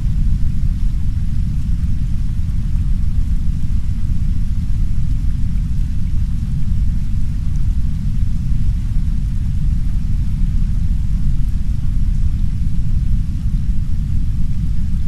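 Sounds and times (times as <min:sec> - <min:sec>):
brown noise deep rumble: 0:00.0 - 0:15.0
soft rain: 0:00.0 - 0:15.0.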